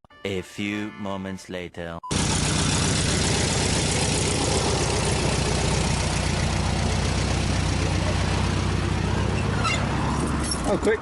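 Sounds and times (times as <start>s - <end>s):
van engine idling: 2.1s - 10.2s.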